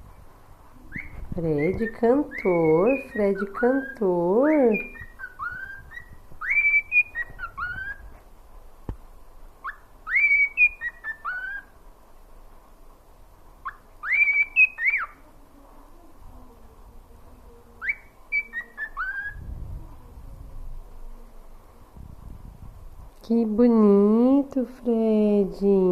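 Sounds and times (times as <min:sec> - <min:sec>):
cockatiel whistling a tune: 0:00.9 - 0:04.0, 0:04.7 - 0:08.1, 0:09.6 - 0:11.7, 0:13.6 - 0:15.2, 0:17.8 - 0:19.4.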